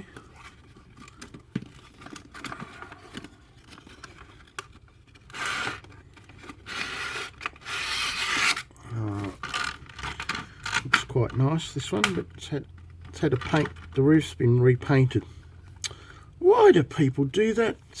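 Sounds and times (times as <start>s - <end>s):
packaging scraping and rustling: 0.0s - 11.1s.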